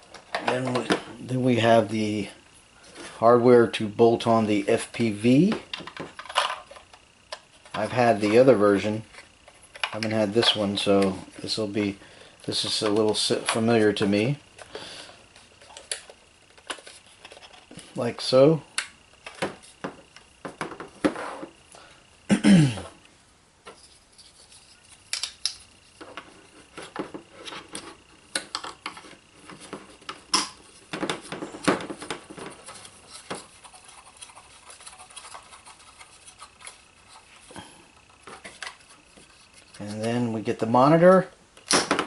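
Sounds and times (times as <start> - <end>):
plastic parts clicking and rattling: 5.5 - 7.8, 24.2 - 40.0.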